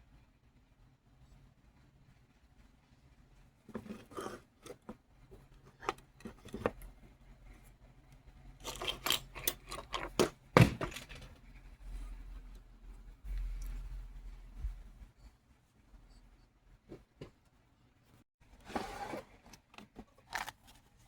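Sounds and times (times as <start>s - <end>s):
small metal tools handled: 8.6s - 11.4s.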